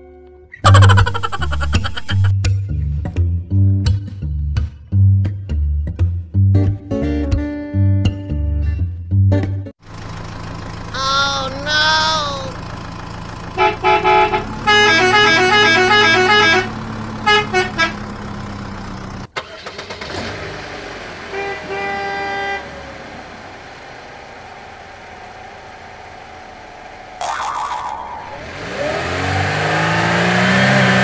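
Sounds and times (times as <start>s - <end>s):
engine hum: 0.5s - 6.8s, 8.8s - 31.0s
two-tone musical horn: 13.6s - 18.0s, 21.3s - 22.7s
vehicle horn honking: 13.6s - 18.0s, 21.2s - 22.8s.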